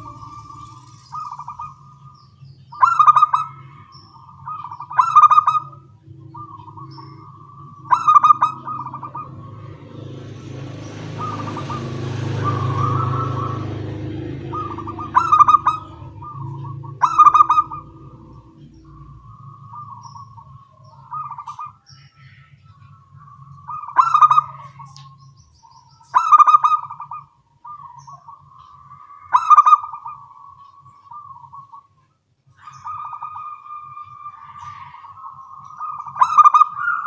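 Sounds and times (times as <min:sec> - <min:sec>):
doves cooing: 0:00.0 - 0:25.2, 0:32.5 - 0:37.0.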